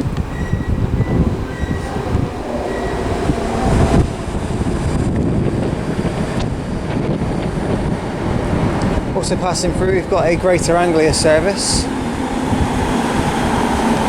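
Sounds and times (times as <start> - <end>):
faint high wheel squeal: 0.0 - 4.6
train wheels rail noise: 0.0 - 14.0.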